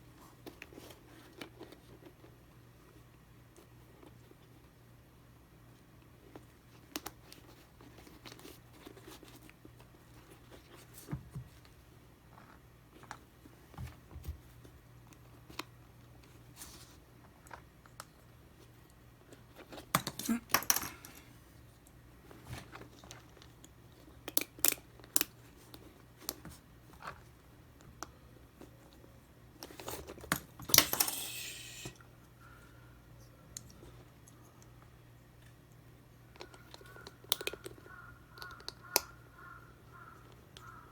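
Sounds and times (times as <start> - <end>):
small parts clicking: 30.3 - 32.0.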